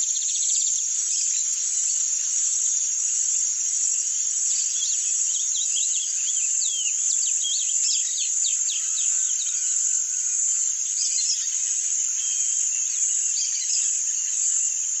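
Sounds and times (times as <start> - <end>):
bird singing chirps: 4.4 - 15.0.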